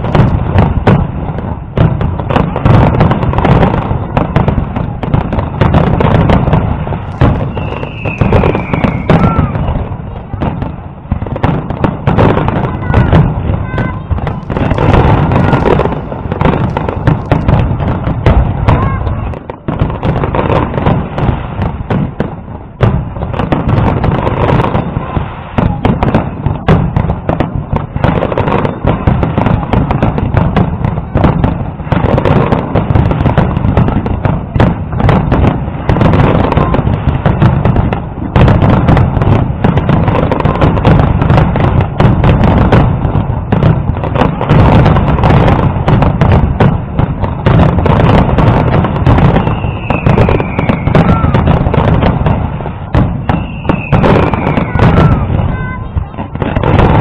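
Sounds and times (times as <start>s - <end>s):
falling firework whistles: 6.9s - 9.8s, 49.0s - 52.0s, 53.0s - 55.3s
firework shell bursts: 7.0s - 9.5s, 12.8s - 17.8s.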